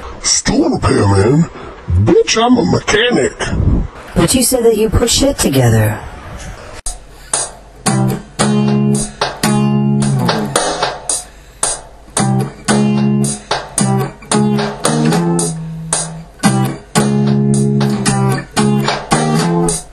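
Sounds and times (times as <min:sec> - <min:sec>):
choppy strummed guitar chords: 0:07.4 - 0:19.9.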